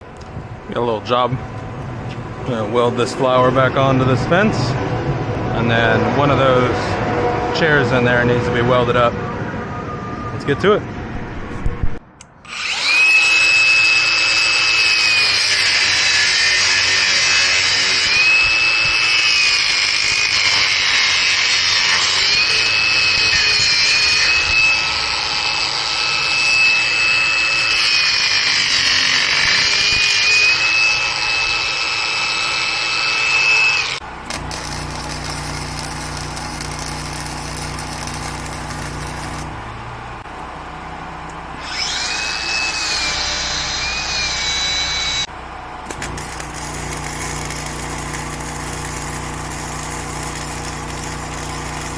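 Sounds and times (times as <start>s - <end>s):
angle grinder grinding metal: 12.2s - 40.2s, 41.6s - 45.3s, 45.9s - 51.9s.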